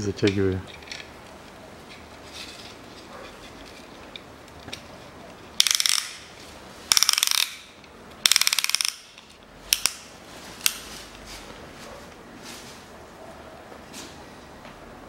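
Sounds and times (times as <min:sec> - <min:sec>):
ratchet clicking: 0:05.6 - 0:06.2, 0:06.9 - 0:10.0.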